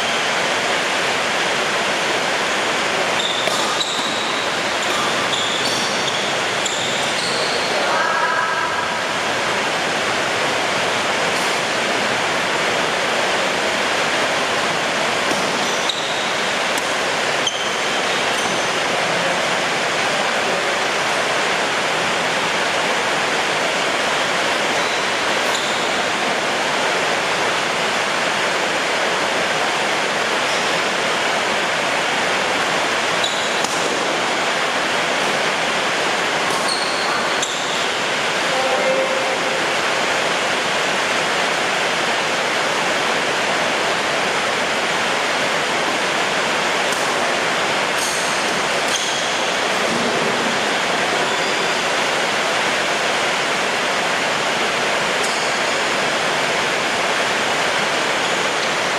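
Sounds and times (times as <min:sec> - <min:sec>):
heavy rain: 0:00.0 - 0:03.2, 0:04.1 - 0:58.9.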